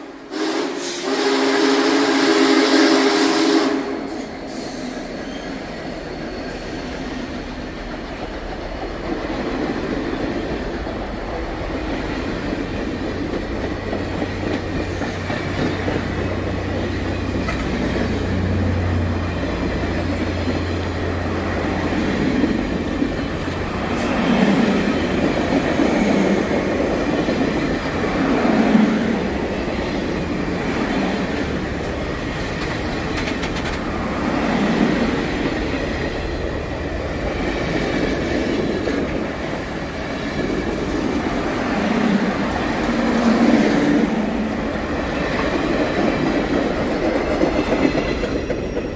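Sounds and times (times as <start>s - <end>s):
train wheels squealing: 4.0s - 7.9s, 12.8s - 41.0s, 47.1s - 48.9s
train wheels clacking on rails: 4.1s - 48.9s.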